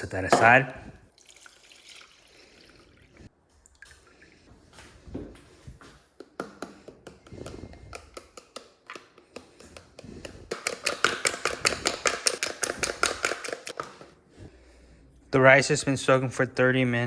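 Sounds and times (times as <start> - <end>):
kitchen utensils tapping and clicking: 6.2 - 14.1.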